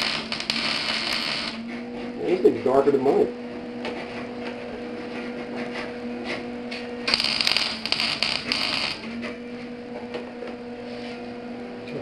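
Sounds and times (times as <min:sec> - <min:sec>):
welding arc crackling and sizzling: 0:00.0 - 0:01.7, 0:07.1 - 0:09.1
steady low hum: 0:00.0 - 0:12.0.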